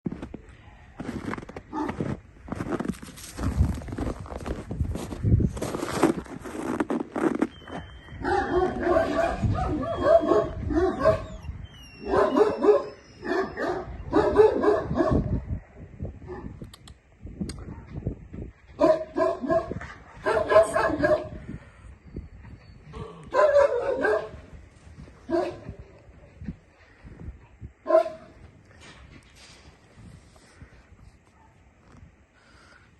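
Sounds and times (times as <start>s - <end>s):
dog barking: 8.2s - 11.3s, 12.0s - 15.3s, 18.8s - 21.4s, 23.0s - 24.4s, 25.3s - 25.7s, 27.9s - 28.3s.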